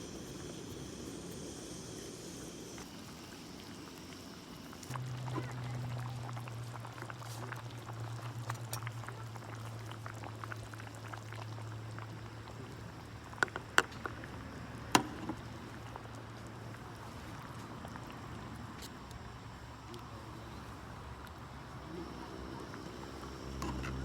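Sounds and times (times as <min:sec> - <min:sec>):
steady low hum: 0:00.0 - 0:08.3
liquid bubbling at the boil: 0:00.0 - 0:24.0.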